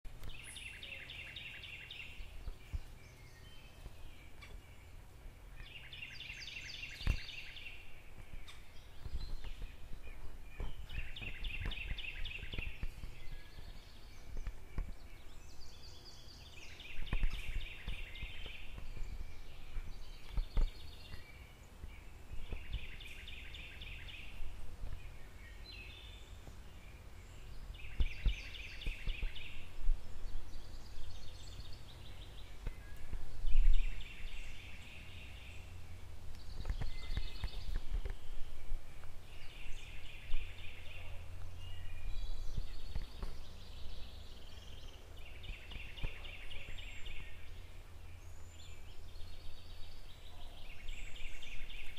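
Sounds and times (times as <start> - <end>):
low outdoor rumble: 0.1 - 51.9
songbird trilling: 0.2 - 21.6.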